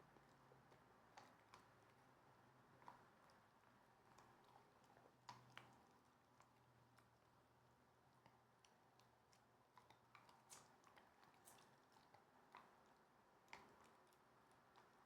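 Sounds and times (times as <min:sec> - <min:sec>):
puppy gnawing chew bone: 0:00.1 - 0:15.0.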